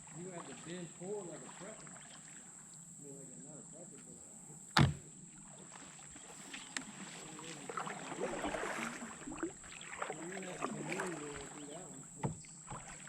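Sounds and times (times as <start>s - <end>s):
water swishing against canoe: 0.0s - 3.4s, 4.0s - 13.0s
faint voices: 3.0s - 9.3s, 10.0s - 12.8s
sharp knock: 4.8s - 5.0s.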